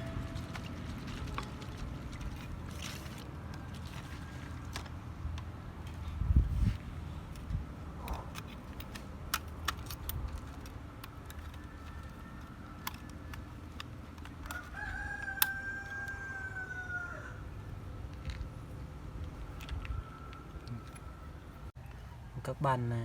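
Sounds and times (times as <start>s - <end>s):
rooster crowing: 11.6s - 13.3s, 14.5s - 17.5s.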